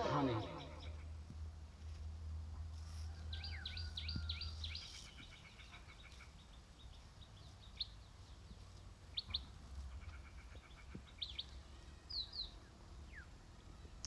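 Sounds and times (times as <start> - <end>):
low rumble: 0.0 - 1.2
small birds chirping: 0.0 - 1.2, 2.6 - 14.0.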